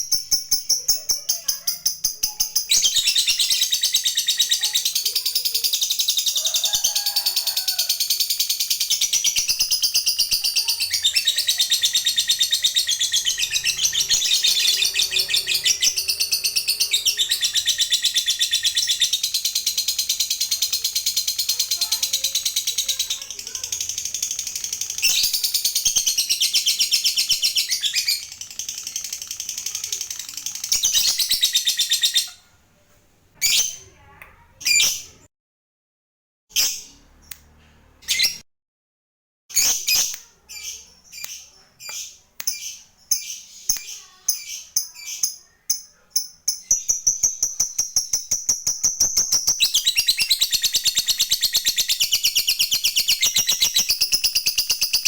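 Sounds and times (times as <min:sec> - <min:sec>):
lovebird chattering trill: 0:00.0 - 0:32.4.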